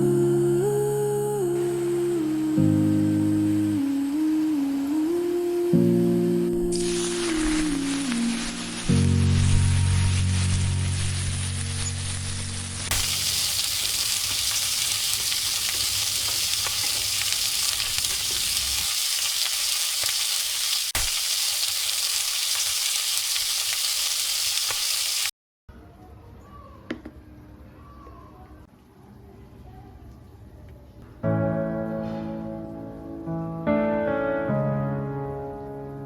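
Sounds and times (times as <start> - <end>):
music: 0.0 - 12.9, 31.2 - 36.0
food sizzling in hot oil: 6.7 - 25.3.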